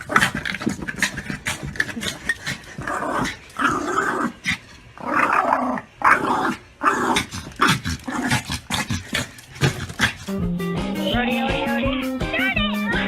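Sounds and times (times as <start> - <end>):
dog growling: 0.0 - 10.4.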